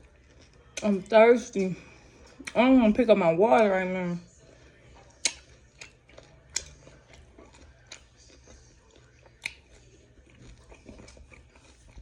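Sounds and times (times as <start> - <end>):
wet chewing mouth noises: 4.9 - 12.0.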